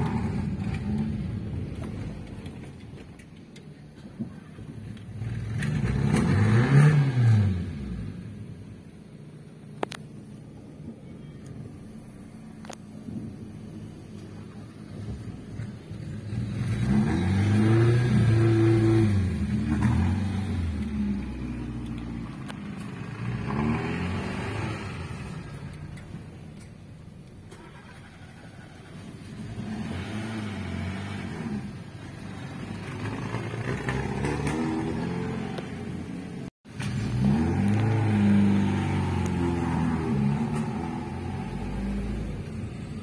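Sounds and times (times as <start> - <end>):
car engine accelerating: 4.0 - 8.5, 12.6 - 26.3, 27.5 - 43.0.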